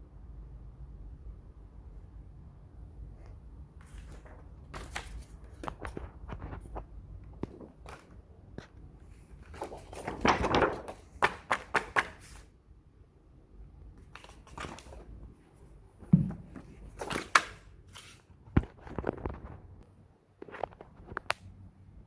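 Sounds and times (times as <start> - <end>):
rustling: 3.1 - 12.5.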